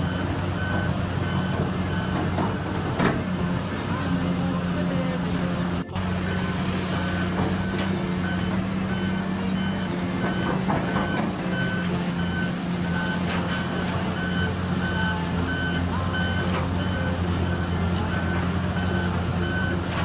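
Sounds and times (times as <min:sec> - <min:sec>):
backup alarm beeping: 0:00.0 - 0:20.0
diesel engine drone: 0:00.0 - 0:20.0.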